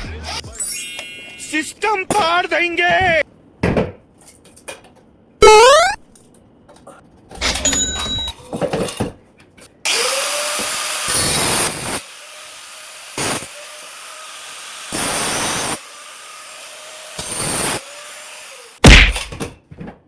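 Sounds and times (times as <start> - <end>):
power tool motor bursts: 9.9 - 18.8.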